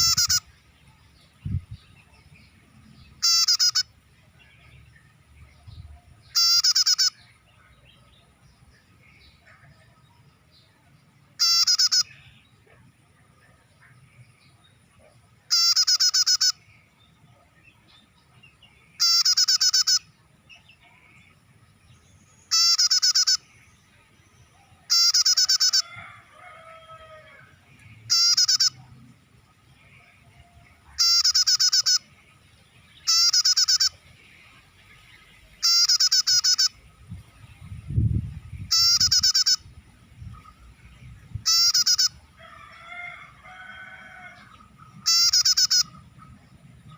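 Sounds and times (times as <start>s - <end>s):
bird call high chattering: 0.0s - 0.8s, 3.0s - 4.7s, 6.2s - 7.5s, 11.4s - 12.6s, 15.5s - 16.7s, 18.9s - 21.3s, 22.4s - 23.8s, 24.5s - 27.1s, 28.0s - 28.9s, 29.8s - 32.3s, 32.9s - 37.0s, 38.6s - 40.8s, 41.4s - 42.2s, 43.8s - 46.9s.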